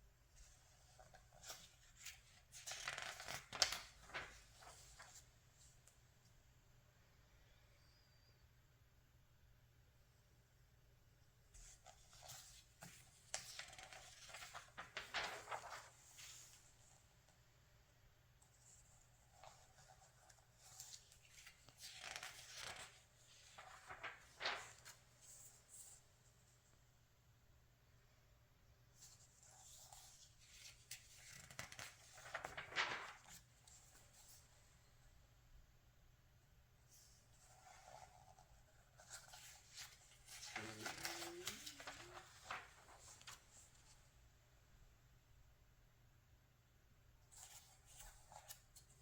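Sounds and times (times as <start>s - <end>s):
magazine pages turning: 0.8s - 5.3s, 11.7s - 16.7s, 19.3s - 26.0s, 29.0s - 34.4s, 36.9s - 44.0s, 47.3s - 49.0s.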